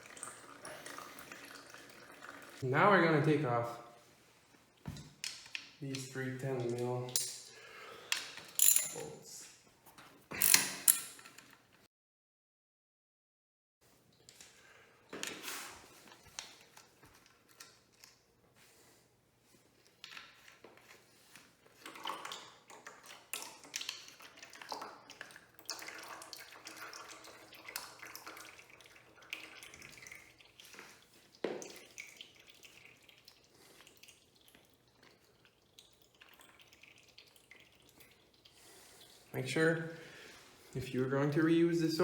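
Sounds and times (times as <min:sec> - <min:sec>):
metal engine parts clinking: 0:08.6 - 0:09.2.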